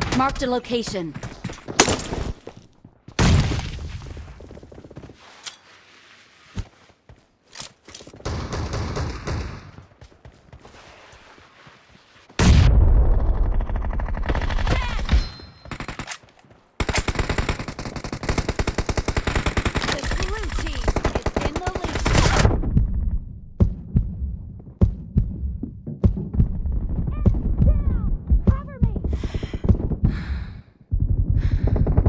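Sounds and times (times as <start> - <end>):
rapid automatic gunfire: 13.1 - 15.0, 16.8 - 22.5, 31.0 - 32.0.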